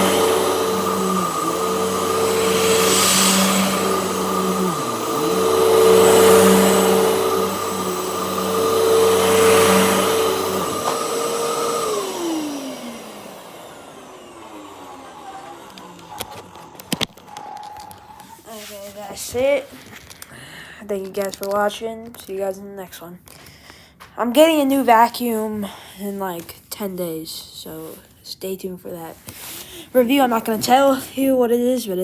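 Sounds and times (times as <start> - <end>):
upright vacuum motor whine: 0.0 - 18.5
vacuum motor spinning down: 0.0 - 18.5.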